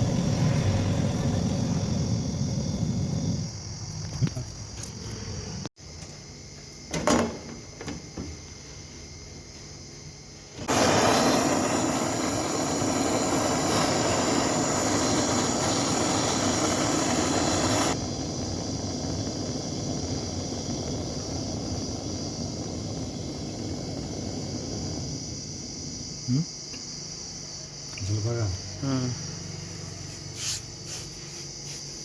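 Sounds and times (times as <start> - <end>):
pressurised gas rushing: 0.0 - 3.6, 10.6 - 25.4
steady high hiss: 8.5 - 32.0.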